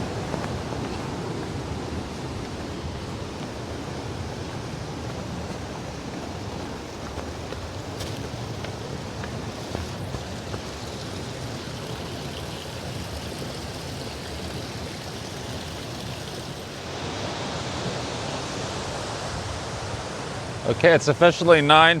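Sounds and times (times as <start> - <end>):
river water rushing: 0.0 - 21.7.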